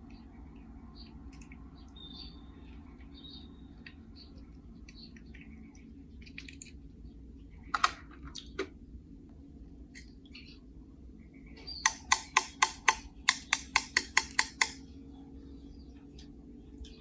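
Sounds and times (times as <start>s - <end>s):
sharp clicks: 11.8s - 14.8s
toy cars clicking and tapping: 11.9s - 14.8s.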